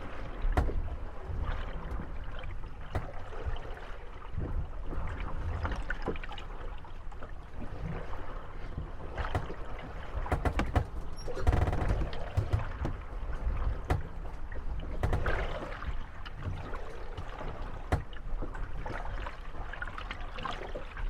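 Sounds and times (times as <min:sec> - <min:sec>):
water lapping: 0:00.0 - 0:21.0
wooden boats knocking and creaking: 0:00.0 - 0:21.0
loud grinding creak: 0:10.3 - 0:12.8.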